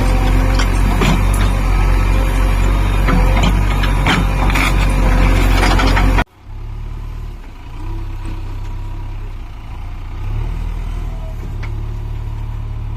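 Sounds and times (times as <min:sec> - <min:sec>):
clattering with sharp knocks: 0:00.0 - 0:06.3
heavy engine running: 0:00.0 - 0:12.9.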